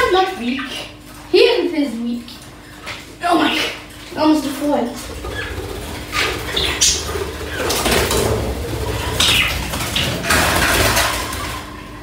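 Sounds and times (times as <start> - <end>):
pet bird chirping: 5.2 - 7.8, 9.0 - 9.7.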